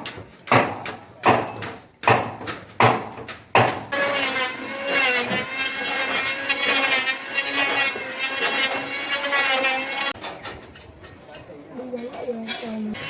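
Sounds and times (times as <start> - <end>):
hand saw cutting wood: 0.5 - 10.2.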